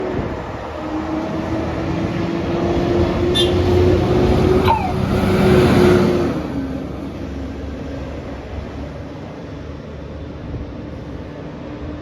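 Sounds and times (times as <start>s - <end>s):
bus engine low hum: 0.0s - 12.0s.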